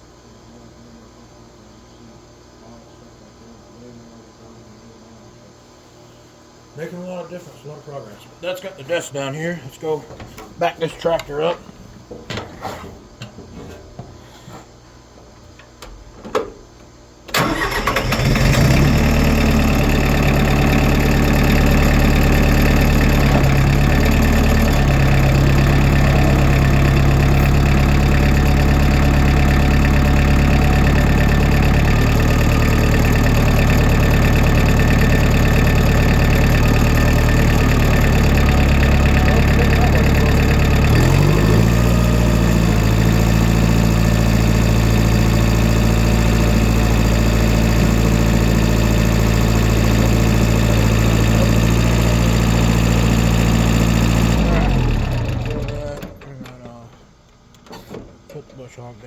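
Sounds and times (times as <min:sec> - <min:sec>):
tractor engine running: 0:17.3 - 0:56.8.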